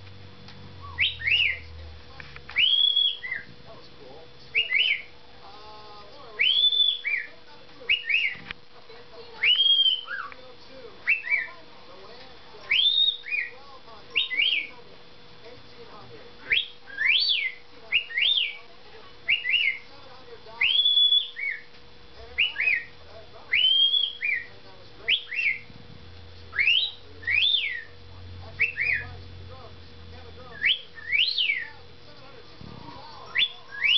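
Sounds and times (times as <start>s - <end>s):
cockatiel wolf whistle: 0.8s - 1.7s, 2.5s - 3.5s, 4.5s - 5.1s, 6.4s - 7.3s, 7.9s - 8.4s, 9.4s - 10.4s, 11.0s - 11.5s, 12.7s - 13.6s, 14.2s - 14.7s, 16.5s - 18.6s, 19.3s - 19.9s, 20.6s - 21.7s, 22.4s - 22.9s, 23.5s - 24.5s, 25.1s - 25.7s, 26.5s - 28.0s, 28.6s - 29.1s, 30.5s - 31.8s, 33.3s - 33.9s.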